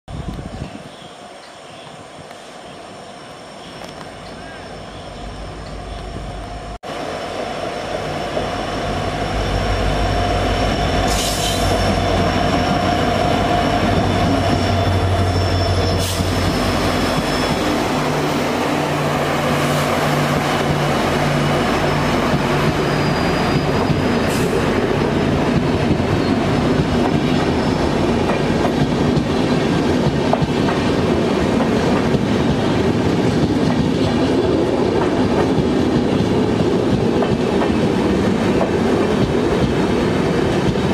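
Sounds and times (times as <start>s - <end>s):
diesel locomotive engine hum: 0.1s - 40.9s
train coaches rumbling and clattering: 0.1s - 40.9s
wheel squeals: 9.4s - 18.0s, 22.4s - 24.6s.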